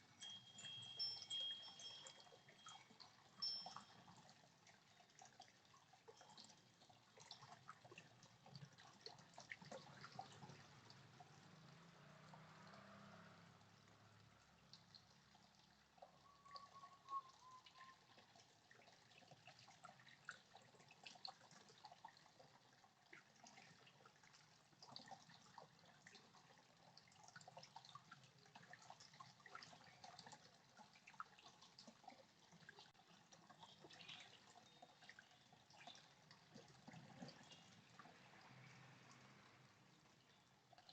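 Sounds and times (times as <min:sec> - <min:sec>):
water dripping and trickling: 0:00.0 - 0:40.9.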